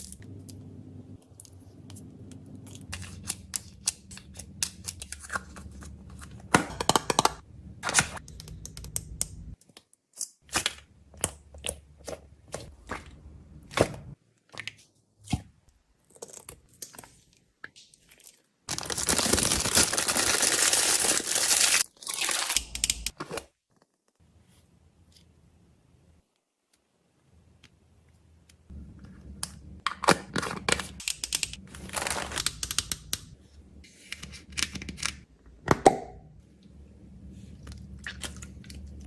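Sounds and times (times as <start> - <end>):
packaging tearing open: 18.7 - 22.8
snack packaging crinkling: 18.7 - 22.8.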